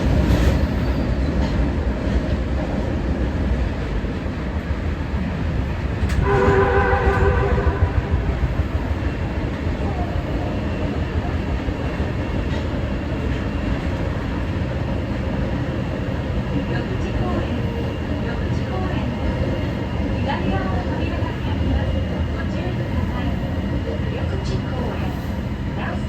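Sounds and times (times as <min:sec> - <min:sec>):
electric train rumbling: 0:00.0 - 0:26.0
train horn blast: 0:06.1 - 0:08.4.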